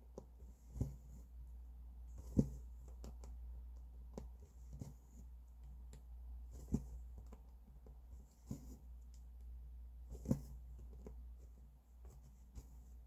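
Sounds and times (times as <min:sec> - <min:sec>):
low steady hum: 0:00.0 - 0:13.0
needle tapping through fabric: 0:02.2 - 0:09.3, 0:10.1 - 0:11.3.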